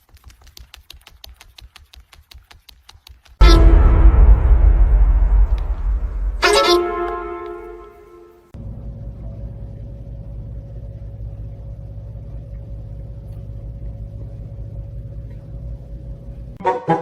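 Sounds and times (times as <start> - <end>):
low rumble: 3.4 - 8.3
faint hum: 3.4 - 16.6.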